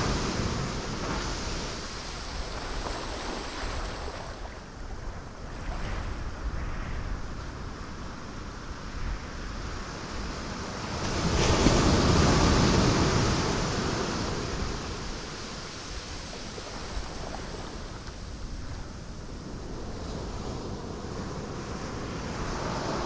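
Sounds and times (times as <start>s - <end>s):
ocean waves washing against rocks: 0.0s - 23.0s
large wave breaking: 10.6s - 18.4s.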